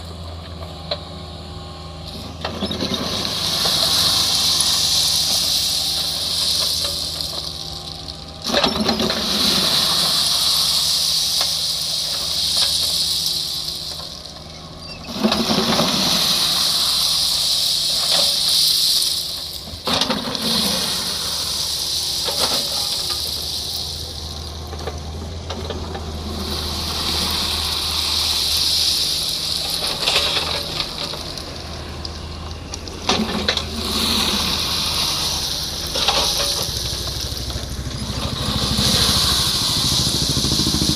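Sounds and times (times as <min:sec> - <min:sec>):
diesel engine running: 0:00.0 - 0:40.9
hydraulic hiss: 0:08.7 - 0:24.4.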